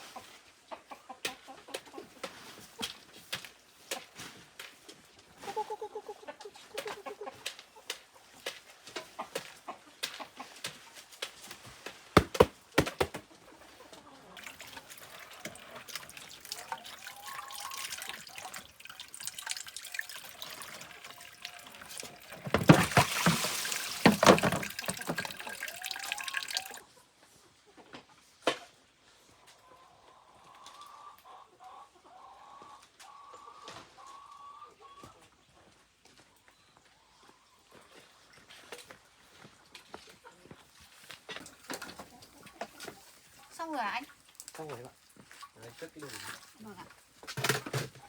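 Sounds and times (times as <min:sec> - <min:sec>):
water running and splashing: 0:14.4 - 0:26.8, 0:43.0 - 0:47.6.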